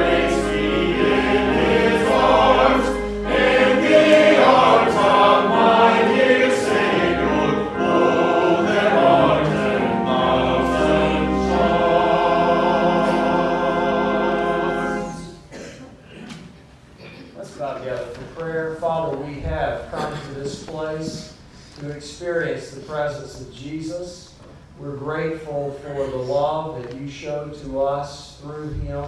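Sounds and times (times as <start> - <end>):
church choir singing: 0.0 - 15.6.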